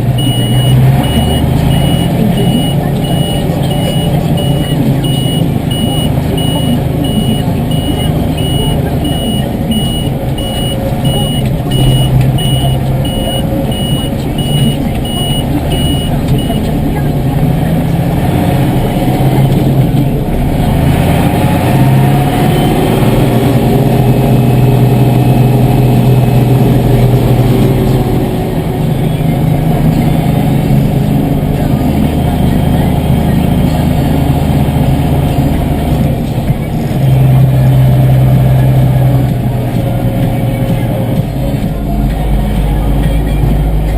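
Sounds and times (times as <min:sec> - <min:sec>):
tractor diesel engine running: 0:00.0 - 0:43.9
repeated electronic beep: 0:00.1 - 0:16.8, 0:22.1 - 0:23.2.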